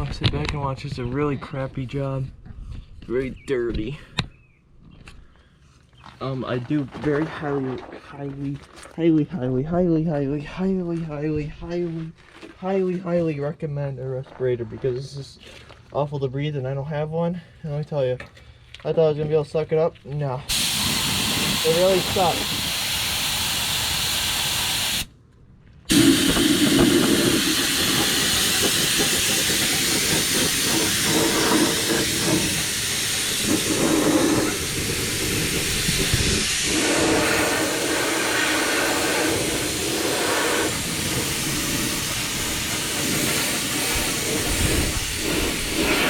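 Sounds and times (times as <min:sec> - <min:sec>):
spray gun hissing: 0:20.5 - 0:25.1, 0:25.9 - 0:46.0.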